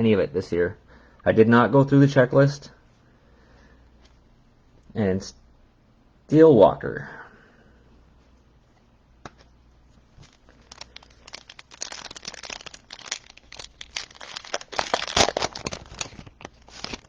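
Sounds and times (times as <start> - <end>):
foil wrapper crinkling and tearing: 10.2 - 17.0.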